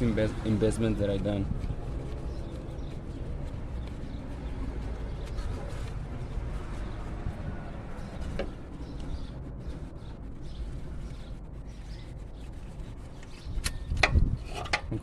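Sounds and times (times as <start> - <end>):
low background rumble: 0.0 - 15.0
ratchet clicking: 13.6 - 14.2.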